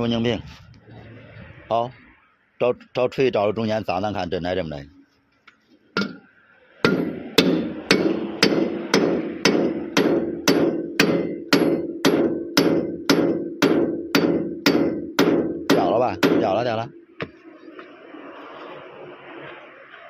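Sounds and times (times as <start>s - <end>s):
hammer striking metal: 6.0s - 16.6s.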